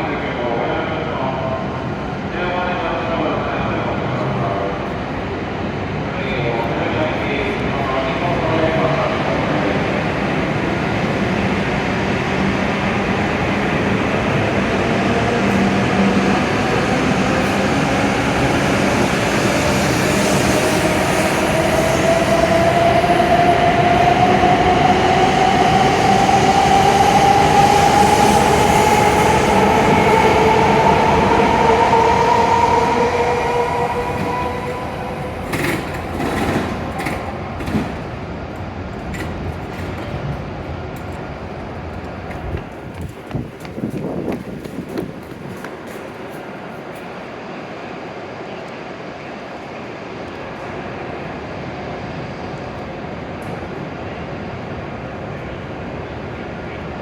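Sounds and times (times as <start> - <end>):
wheels rumbling on rail: 10.0 - 47.8.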